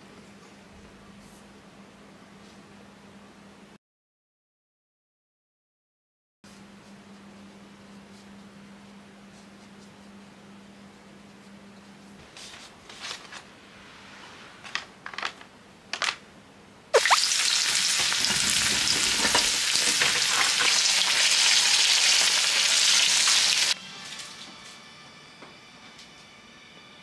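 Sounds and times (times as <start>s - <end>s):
food deep-frying in oil: 17.0s - 23.8s.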